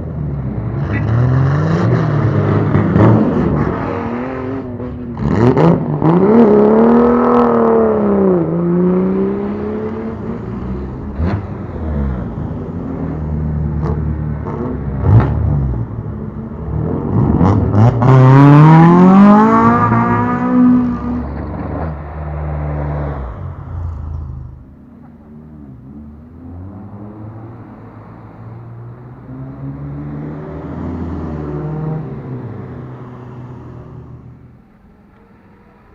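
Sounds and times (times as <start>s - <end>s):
car engine revving: 0.5s - 28.6s.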